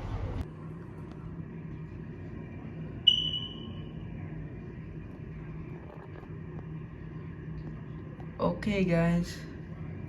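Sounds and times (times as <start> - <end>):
steady low hum: 0.0 - 10.0
high-pitched ping: 3.1 - 3.9.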